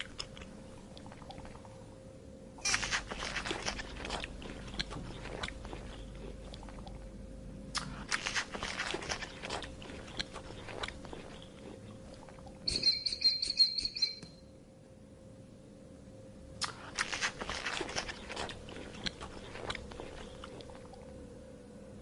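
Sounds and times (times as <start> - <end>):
animal crunching food: 2.6 - 7.1, 7.8 - 13.0, 16.6 - 21.1.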